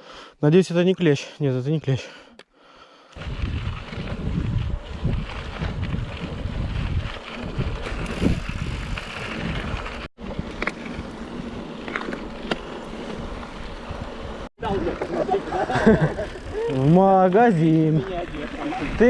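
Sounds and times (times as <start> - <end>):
bicycle rumble: 2.9 - 19.0
wind on microphone: 3.2 - 10.1.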